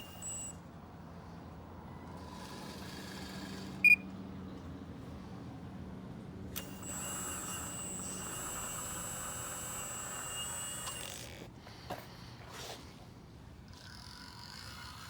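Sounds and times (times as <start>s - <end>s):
hydraulic pump whining: 0.0s - 0.6s, 6.5s - 12.0s.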